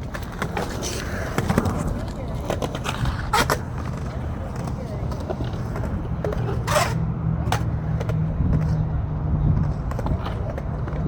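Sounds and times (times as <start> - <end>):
skateboard scrape: 0.0 - 8.8
skateboard wheels rolling on concrete: 0.0 - 11.0.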